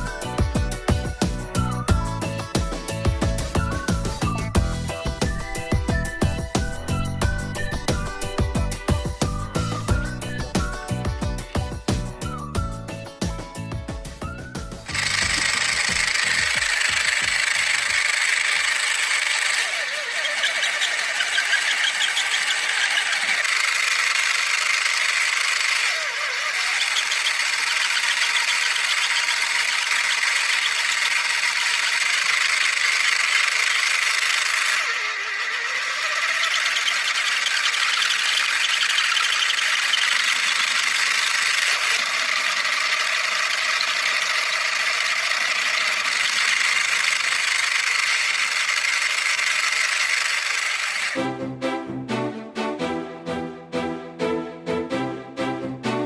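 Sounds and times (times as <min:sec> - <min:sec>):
small motor whirring: 0:14.4 - 0:51.2.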